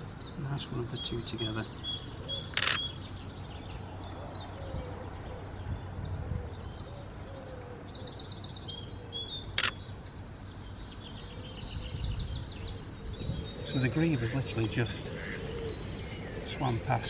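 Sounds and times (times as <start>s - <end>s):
songbirds singing and chirping: 0.0s - 17.0s
camera shutter click: 2.5s - 2.8s, 9.6s - 9.8s.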